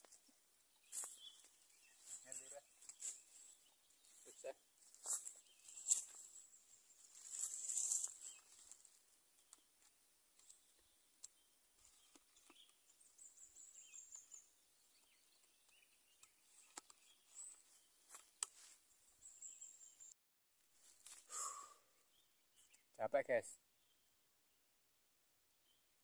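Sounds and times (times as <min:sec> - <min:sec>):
bird chirps and trills: 0:00.1 - 0:09.7, 0:10.4 - 0:20.1.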